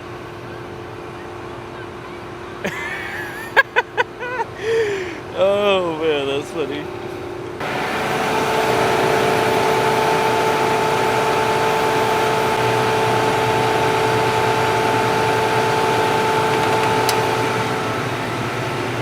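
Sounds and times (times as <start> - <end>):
constant machine whine: 0.0 - 19.0
combine harvester running: 6.4 - 19.0.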